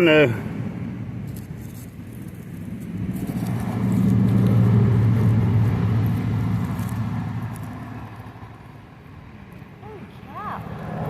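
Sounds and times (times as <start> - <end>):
car passing by: 2.6 - 11.0.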